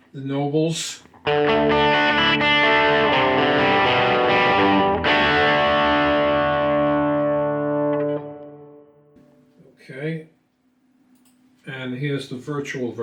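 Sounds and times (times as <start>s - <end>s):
overdriven electric guitar chords: 1.1s - 9.2s.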